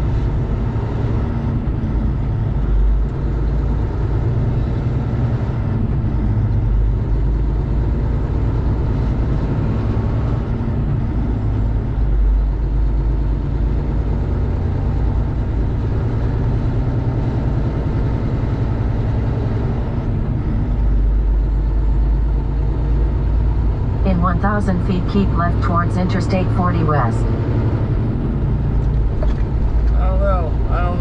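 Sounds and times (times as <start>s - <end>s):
diesel engine rumbling: 0.0s - 31.0s.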